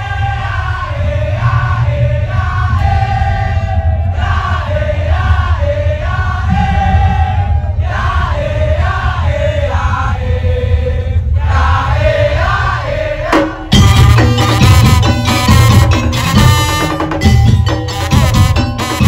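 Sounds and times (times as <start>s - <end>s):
heavy bass and drum: 0.0s - 10.1s, 11.2s - 19.0s
sharp percussion strikes: 13.4s - 19.0s
wavering melody: 13.8s - 19.0s.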